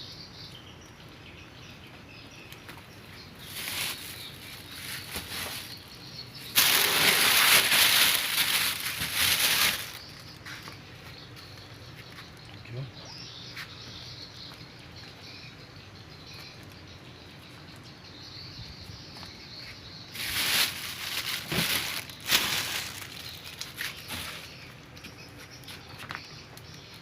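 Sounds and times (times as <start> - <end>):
rustling handling noise: 3.2 - 12.4, 20.1 - 24.7.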